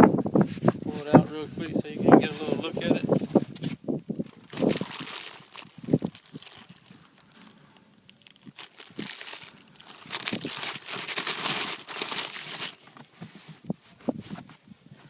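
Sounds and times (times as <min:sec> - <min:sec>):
packaging crinkling and rustling: 0:02.3 - 0:13.4.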